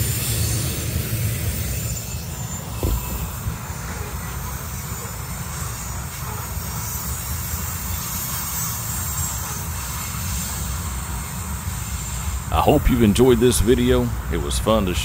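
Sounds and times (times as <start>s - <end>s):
dull thump: 2.8s - 4.1s.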